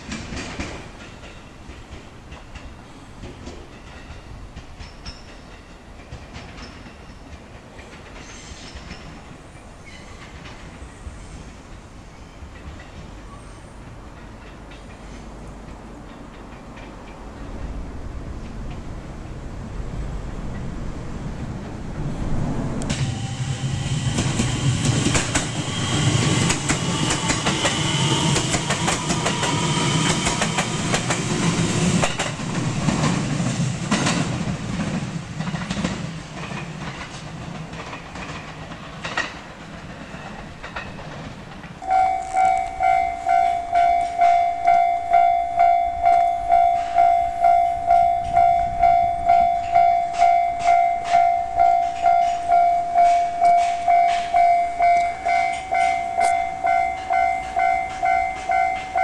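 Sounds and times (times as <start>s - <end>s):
wheels clicking over rail joints: 0.0s - 10.8s, 11.6s - 19.0s, 24.2s - 59.0s
electric train passing: 0.0s - 59.0s
level-crossing warning bell dinging: 41.8s - 59.0s.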